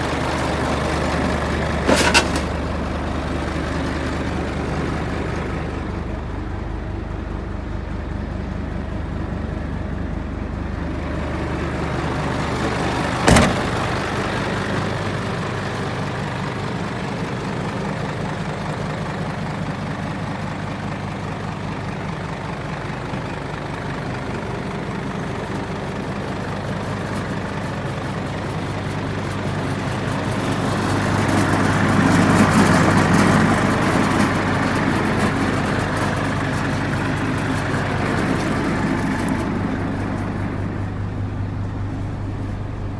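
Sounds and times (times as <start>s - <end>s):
diesel truck engine idling: 0.0s - 42.9s
sharp knock: 13.3s - 13.8s.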